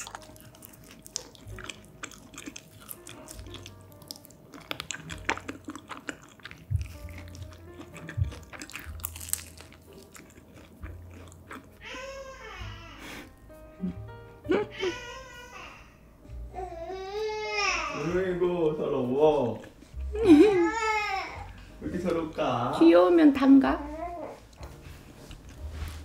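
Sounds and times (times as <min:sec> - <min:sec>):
crisp crust crackles: 0:00.0 - 0:11.7
crunchy chewing of pizza: 0:00.0 - 0:12.1
baby crying: 0:11.8 - 0:13.2, 0:14.5 - 0:18.2, 0:20.2 - 0:21.6, 0:23.8 - 0:24.4.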